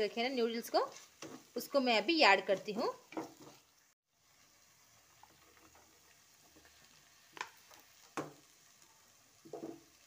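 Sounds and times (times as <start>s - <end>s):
vegetables sizzling in a wok: 0.0s - 10.0s.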